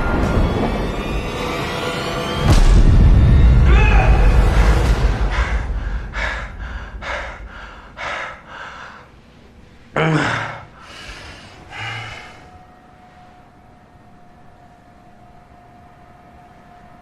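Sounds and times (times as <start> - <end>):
man panting: 5.3 - 9.2, 10.0 - 12.6.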